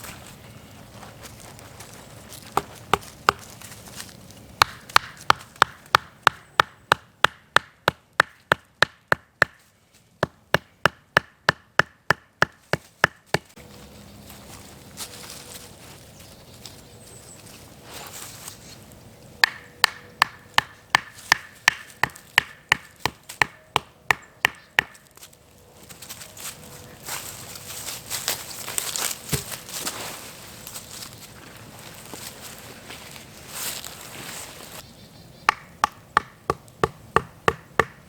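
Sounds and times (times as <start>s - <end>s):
sharp wooden knocks: 4.6s - 9.6s, 19.4s - 25.0s, 35.5s - 38.0s.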